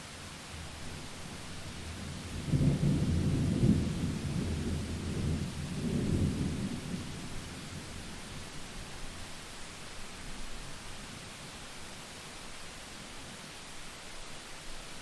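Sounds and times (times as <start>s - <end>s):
steady rain hiss: 0.0s - 15.0s
thunder rumbling: 2.0s - 8.0s.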